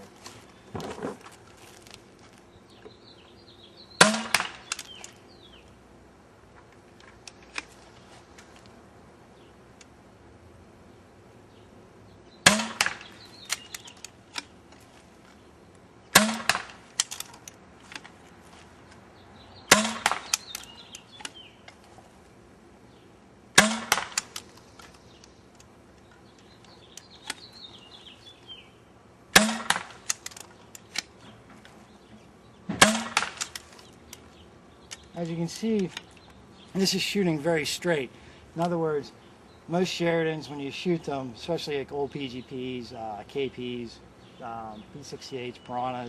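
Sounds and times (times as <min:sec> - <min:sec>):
paintball pistol shots: 0:04.0 - 0:05.0, 0:12.4 - 0:13.9, 0:16.1 - 0:17.2, 0:19.7 - 0:20.7, 0:23.6 - 0:24.4, 0:29.3 - 0:30.3, 0:32.7 - 0:33.6.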